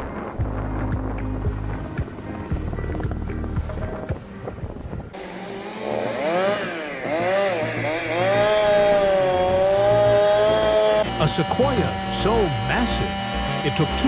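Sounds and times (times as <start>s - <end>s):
chainsaw engine revving: 5.2s - 14.0s.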